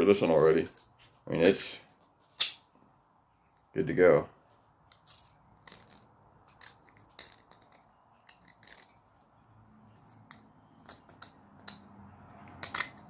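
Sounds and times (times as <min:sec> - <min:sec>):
metallic clicks and scrapes: 0:04.8 - 0:13.0.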